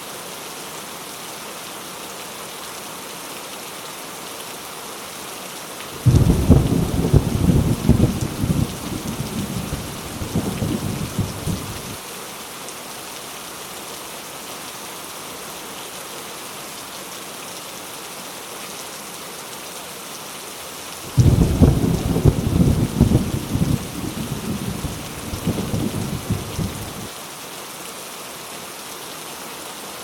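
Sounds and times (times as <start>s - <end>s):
heavy rain: 0.0s - 30.0s
loud thunderclap: 6.0s - 12.0s, 21.2s - 27.1s
thunder rumbling: 6.0s - 12.0s, 21.1s - 27.1s.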